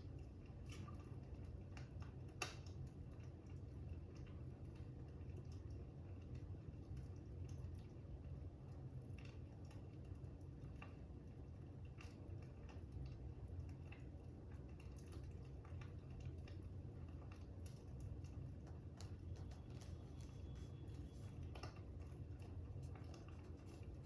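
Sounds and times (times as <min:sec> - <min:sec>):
fire crackling softly: 0:00.0 - 0:24.0.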